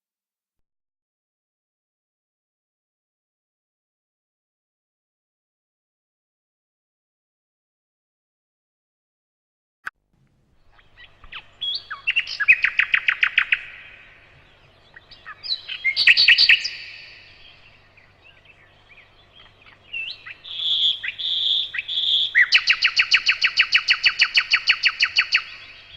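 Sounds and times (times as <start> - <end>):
bird trilling: 10.6 - 25.9.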